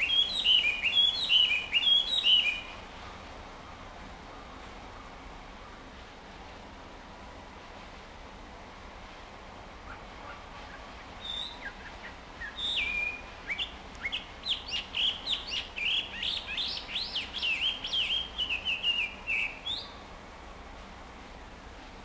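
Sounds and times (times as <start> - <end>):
songbird clear whistles: 0.0 - 2.8, 10.3 - 20.0.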